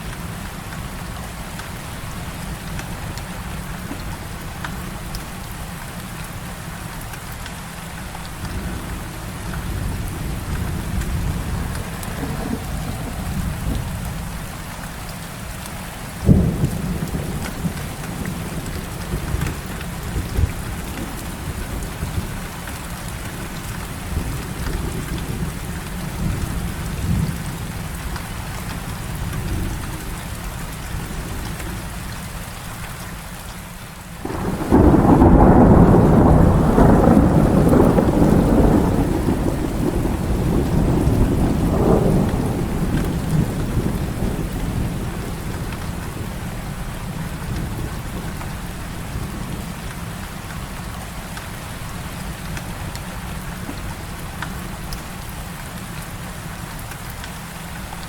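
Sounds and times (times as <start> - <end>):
heavy rain falling: 0.0 - 58.0
thunder clap rumbling: 8.4 - 14.7, 16.2 - 22.5, 34.2 - 49.8.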